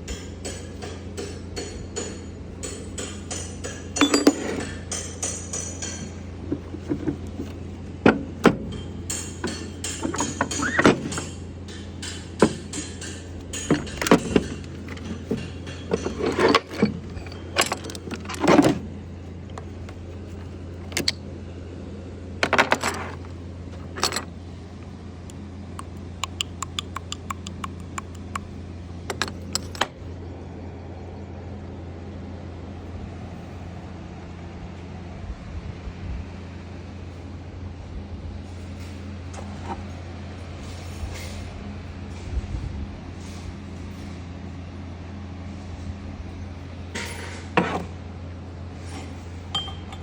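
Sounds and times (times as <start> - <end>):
steady low hum: 0.0 - 50.0
steel tools clinking and knocking: 0.1 - 7.1, 8.7 - 18.8, 22.4 - 24.3, 25.8 - 28.5, 29.1 - 30.0, 48.9 - 50.0.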